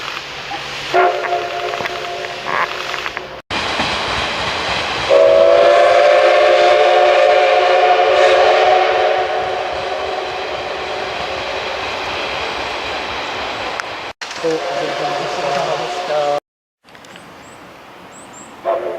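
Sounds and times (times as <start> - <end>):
train running noise: 0.0 - 18.9
steam locomotive whistle: 0.9 - 2.7, 5.1 - 11.5, 18.6 - 18.9.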